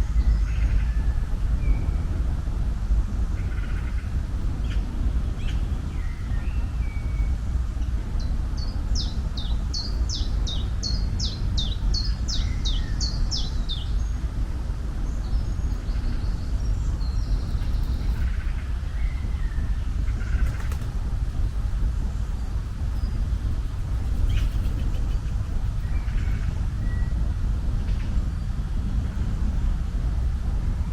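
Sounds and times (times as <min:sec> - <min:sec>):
low outdoor rumble: 0:00.0 - 0:30.9
small bird singing: 0:08.2 - 0:14.2, 0:23.0 - 0:27.2.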